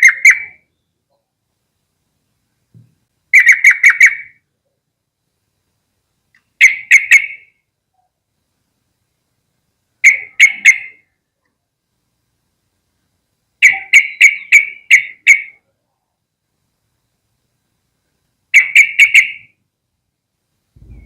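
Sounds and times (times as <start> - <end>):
bird chattering calls: 0.0 - 0.6, 3.4 - 4.4, 10.0 - 11.0, 13.6 - 15.6, 18.6 - 19.5.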